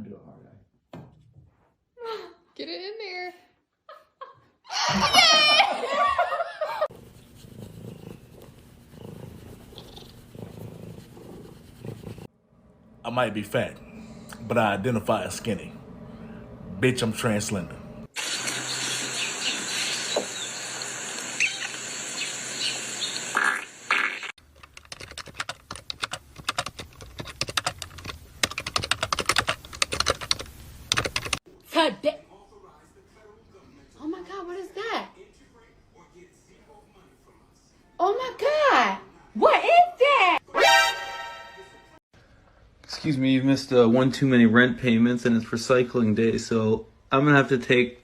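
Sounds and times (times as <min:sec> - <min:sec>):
cat purring: 0:07.4 - 0:12.3
rapid clicking and tapping: 0:24.4 - 0:31.4.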